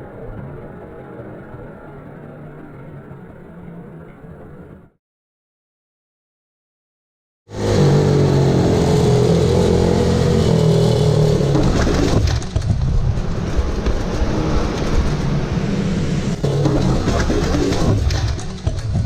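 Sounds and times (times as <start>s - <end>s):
small motorbike engine running hard: 7.5s - 19.0s.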